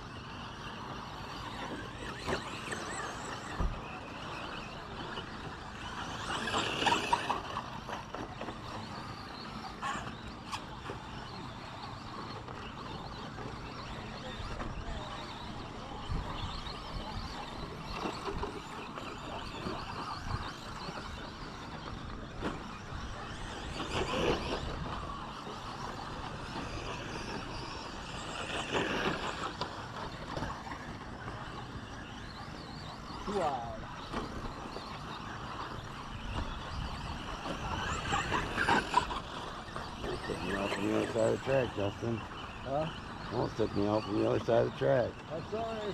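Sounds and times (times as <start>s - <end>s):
rc trucks racing: 0.0s - 45.9s.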